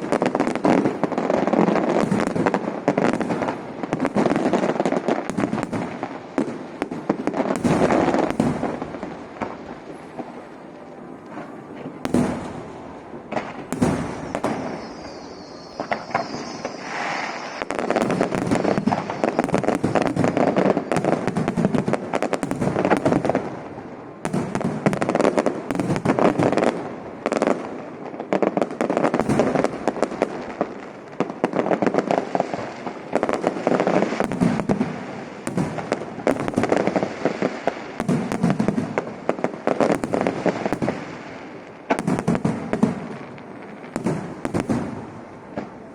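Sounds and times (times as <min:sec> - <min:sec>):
fireworks bangs and crackling: 0:00.0 - 0:45.9
firework whistle: 0:13.5 - 0:21.6.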